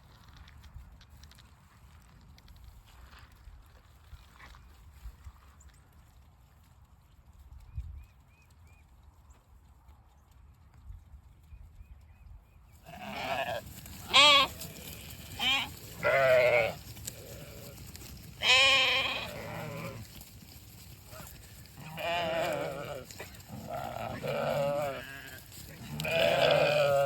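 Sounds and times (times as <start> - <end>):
sheep bleating: 12.8 - 20.2, 21.1 - 27.0.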